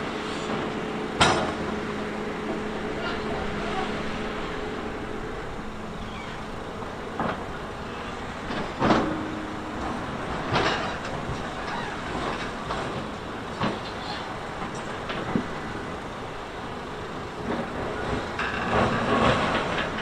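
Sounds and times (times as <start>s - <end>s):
heavy machinery rumbling: 0.0s - 20.0s.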